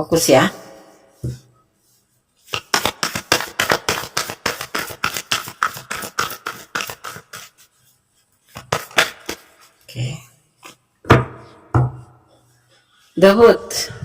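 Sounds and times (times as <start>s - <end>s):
cards shuffled by hand: 2.4s - 7.8s, 8.4s - 9.9s.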